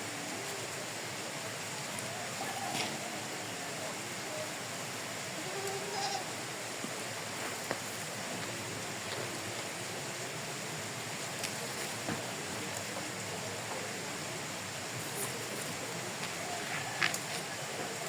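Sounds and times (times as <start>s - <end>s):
livestock bleating faintly: 5.4s - 6.3s.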